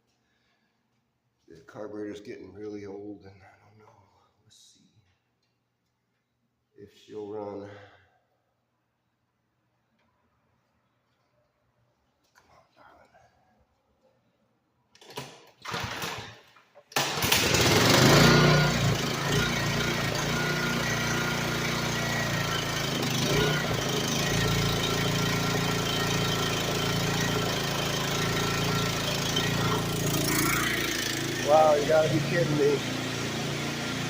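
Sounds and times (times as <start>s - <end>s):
recoil starter pull: 14.9s - 34.0s
small engine running: 17.2s - 34.0s.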